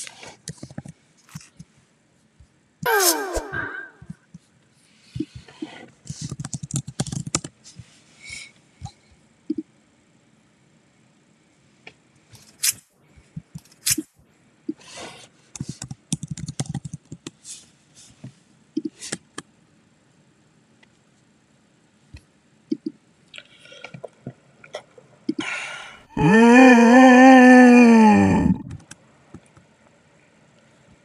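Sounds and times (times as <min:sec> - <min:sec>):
computer keyboard and mouse clicks: 0:06.2 - 0:07.5, 0:15.6 - 0:17.4.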